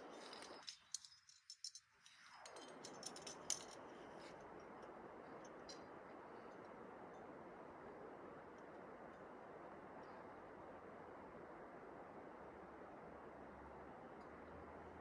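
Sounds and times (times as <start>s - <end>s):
climbing gear clinking: 0.0s - 4.0s.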